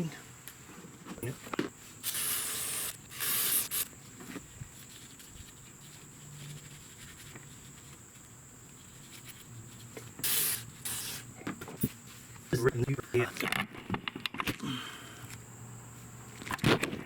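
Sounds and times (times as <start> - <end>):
short hissing burst: 2.0 - 3.9, 10.2 - 11.3.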